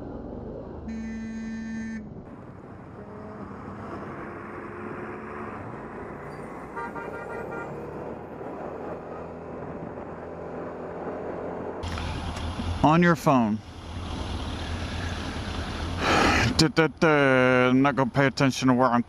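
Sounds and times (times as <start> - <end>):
road traffic noise: 0.0 - 19.0
vehicle horn: 0.9 - 2.0, 6.7 - 7.8.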